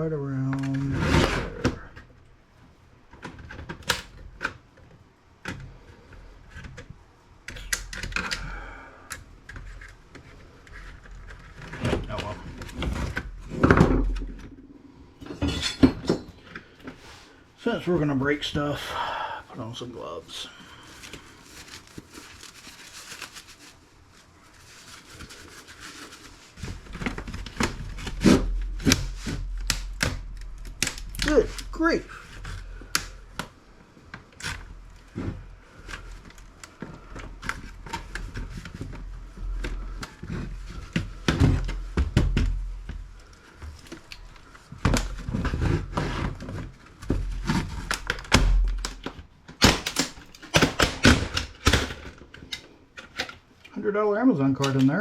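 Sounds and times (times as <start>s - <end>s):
faint rustling: 19.6s - 29.4s
plastic case cracking apart: 44.9s - 53.4s.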